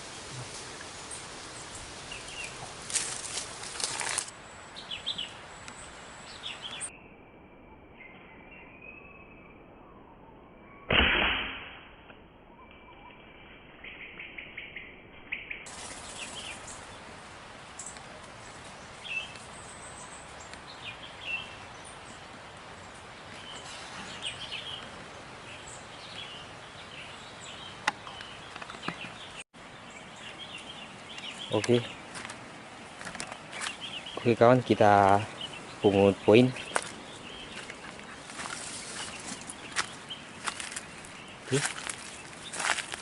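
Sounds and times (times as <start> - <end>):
birds chirping: 0.0 - 7.1, 12.5 - 43.0
outdoor background noise: 0.0 - 43.0
air rifle shot: 10.9 - 12.0.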